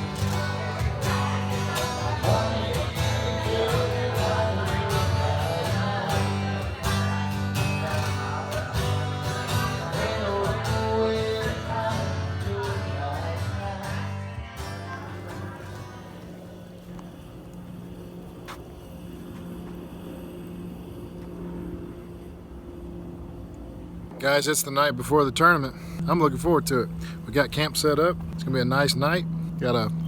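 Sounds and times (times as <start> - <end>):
acoustic guitar country song: 0.0 - 22.2.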